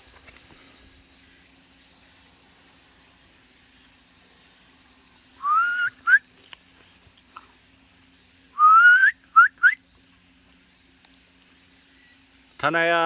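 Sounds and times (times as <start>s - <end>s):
person whistling rising whistles: 5.4s - 6.2s, 8.6s - 9.8s.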